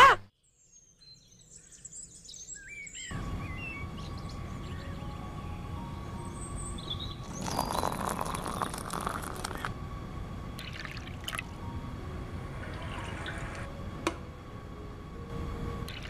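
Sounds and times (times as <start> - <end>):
tea pouring and splashing: 7.2 - 9.7, 10.6 - 11.6.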